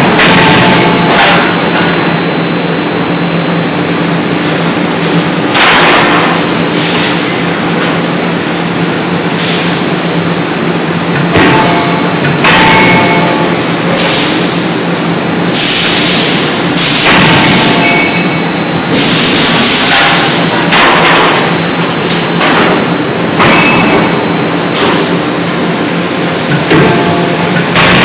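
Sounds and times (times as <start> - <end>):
forging hammer machinery hum: 0.0 - 28.0
machine knock: 26.5 - 28.0.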